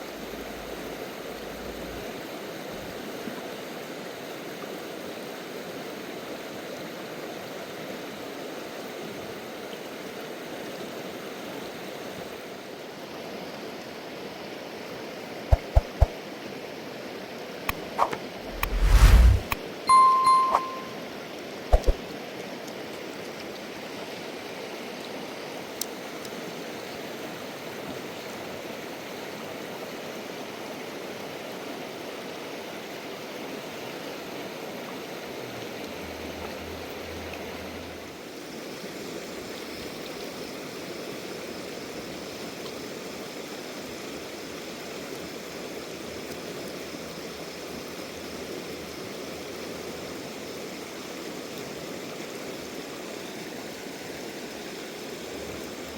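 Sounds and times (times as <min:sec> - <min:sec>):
sharp click: 0:17.7 - 0:19.6.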